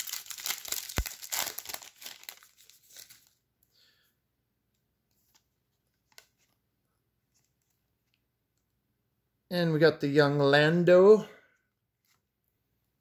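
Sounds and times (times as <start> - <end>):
trading cards rustling and clicking: 0.0 - 3.3
wrapper crinkling: 0.0 - 3.4.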